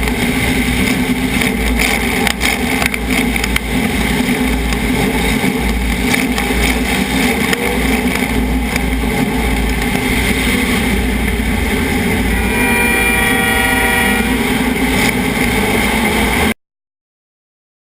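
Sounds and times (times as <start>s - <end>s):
rough car engine racket: 0.0s - 16.5s
held multi-pitch tone: 12.1s - 15.1s.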